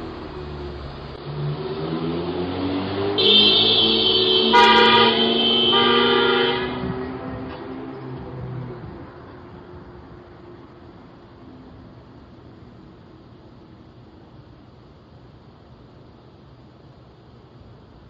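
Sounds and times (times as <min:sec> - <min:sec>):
cars accelerating hard: 0:00.0 - 0:09.3
car horn long blast: 0:03.2 - 0:07.2.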